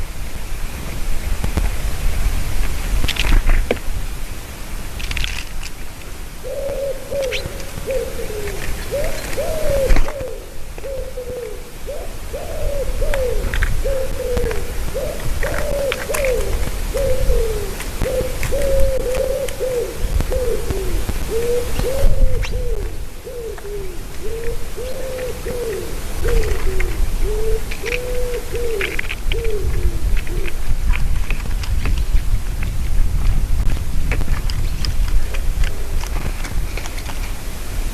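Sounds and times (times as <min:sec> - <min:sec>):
bird calling low arched notes: 0:06.4 - 0:30.6
faint high chirps of small birds: 0:06.5 - 0:27.0.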